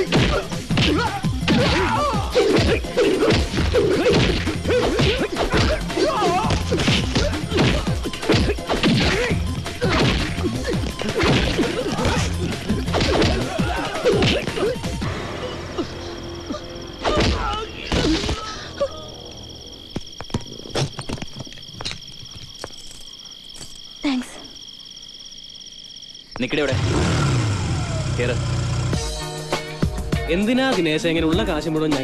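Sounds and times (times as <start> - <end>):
music: 0.0 - 20.0, 27.0 - 32.0.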